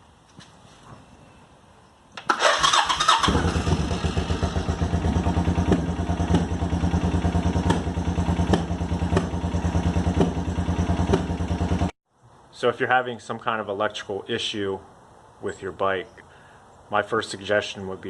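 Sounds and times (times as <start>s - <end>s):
motorcycle electric starter cranking: 2.2s - 9.5s
motorcycle engine idling: 2.4s - 11.9s.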